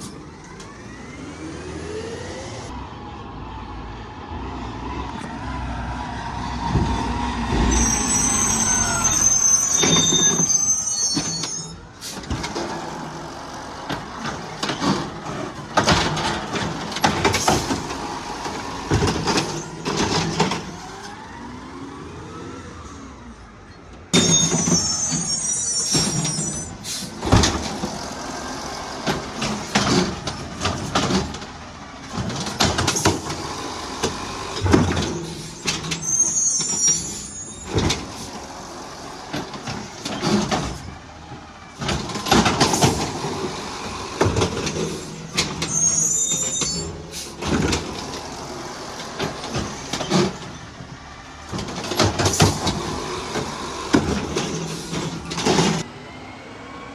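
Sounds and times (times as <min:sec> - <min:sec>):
garbage truck engine under load: 0:00.0 - 0:03.6, 0:04.2 - 0:56.9
metallic clanks and bangs: 0:06.6 - 0:10.4
high squeal: 0:07.2 - 0:12.3, 0:24.2 - 0:27.2, 0:35.2 - 0:38.4, 0:45.1 - 0:47.4.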